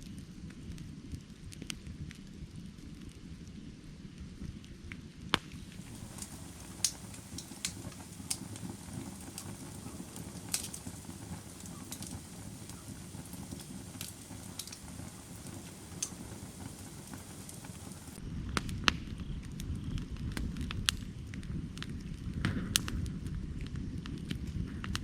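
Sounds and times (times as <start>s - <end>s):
wood crackling and popping: 4.2s - 25.0s
flames rushing: 5.3s - 19.0s, 19.9s - 25.0s.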